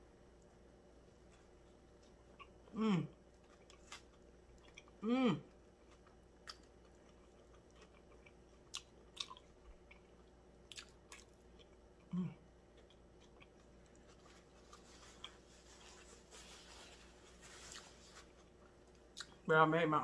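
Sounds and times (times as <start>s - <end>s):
person chewing food: 1.1s - 19.5s
low throat sound: 2.7s - 3.1s, 5.0s - 5.5s, 12.1s - 12.4s.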